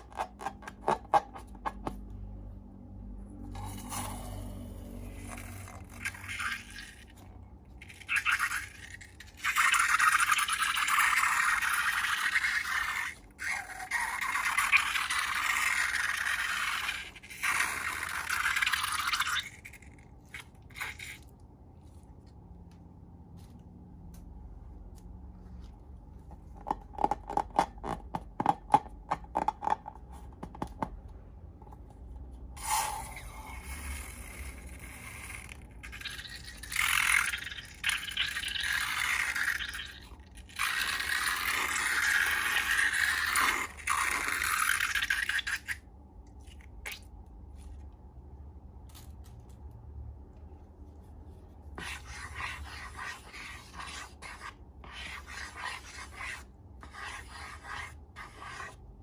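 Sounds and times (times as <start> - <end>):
scratchy scraping and rustling: 50.7 - 59.0.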